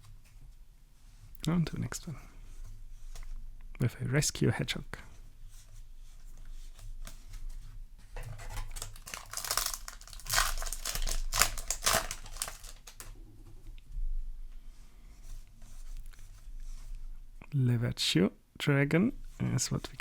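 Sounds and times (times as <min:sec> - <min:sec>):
cards being handled: 0:08.2 - 0:13.1
foil wrapper tearing and crinkling: 0:08.3 - 0:13.1.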